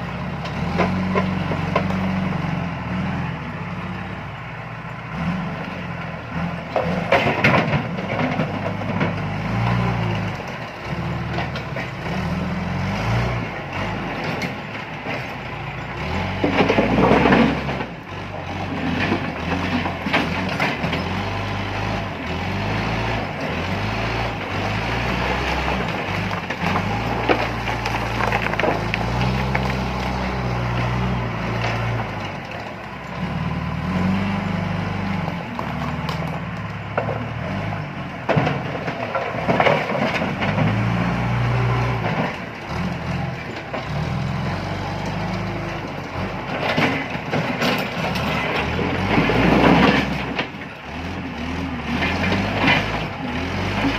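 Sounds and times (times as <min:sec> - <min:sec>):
backhoe diesel engine working: 0:00.0 - 0:53.9
stones clattering into truck: 0:25.2 - 0:30.8, 0:38.2 - 0:40.9.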